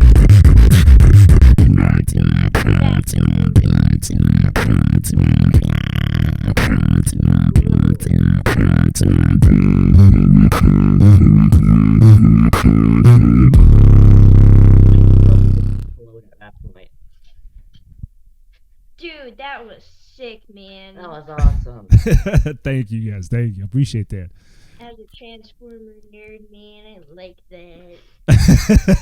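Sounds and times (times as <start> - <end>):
beatboxing: 0.0 - 16.0, 21.4 - 24.5, 28.3 - 29.0.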